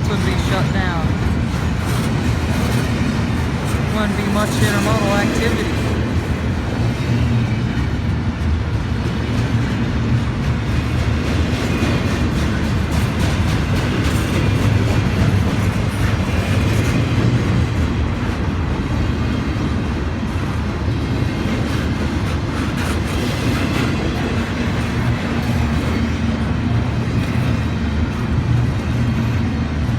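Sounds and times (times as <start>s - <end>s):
wheels clicking over rail joints: 0.0s - 18.5s
freight train rumbling past: 0.0s - 29.9s.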